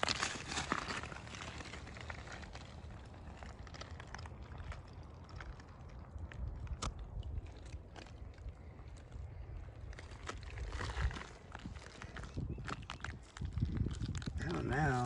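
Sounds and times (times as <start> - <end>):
footsteps crunching dry leaves: 0.0 - 2.5
twig snapping: 3.3 - 8.6.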